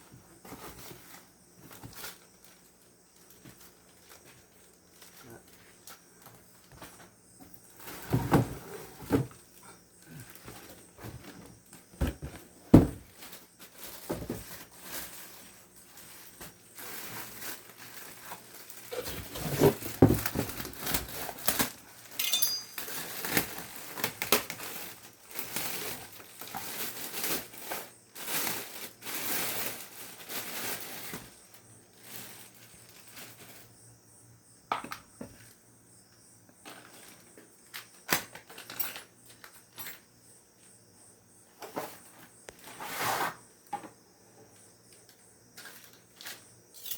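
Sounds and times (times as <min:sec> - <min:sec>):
wrapping crinkling: 0:13.1 - 0:33.7
hard objects clattering: 0:18.8 - 0:23.5.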